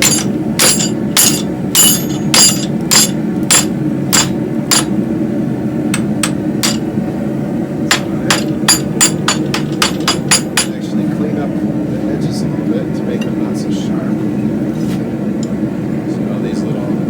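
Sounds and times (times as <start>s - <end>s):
hammer striking metal on anvil: 0.0s - 5.0s, 5.9s - 6.9s, 7.9s - 10.8s.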